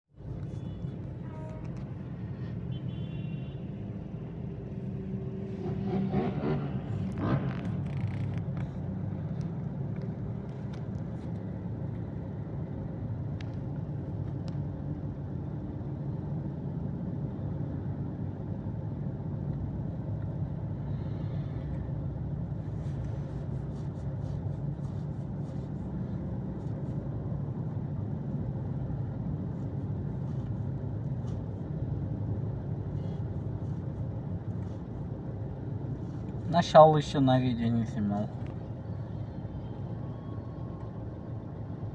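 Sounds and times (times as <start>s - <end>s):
motorcycle engines at low revs: 5.3s - 11.1s.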